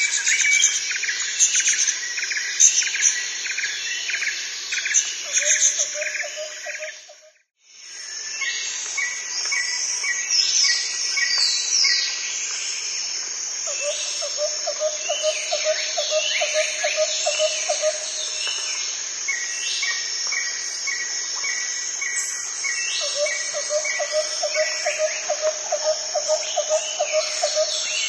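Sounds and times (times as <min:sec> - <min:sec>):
insect hiss: 0:00.0 - 0:28.0.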